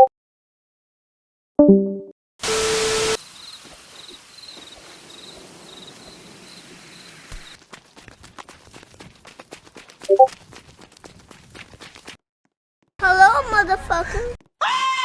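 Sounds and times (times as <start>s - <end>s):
loud hiss with hum: 2.4s - 4.5s
insects chirping: 2.4s - 7.6s.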